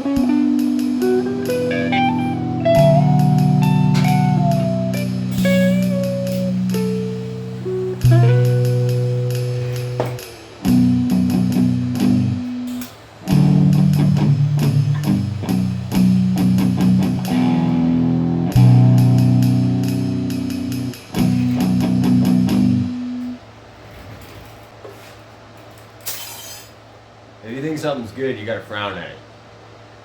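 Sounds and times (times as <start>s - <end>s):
guitar music with bass: 0.0s - 23.4s.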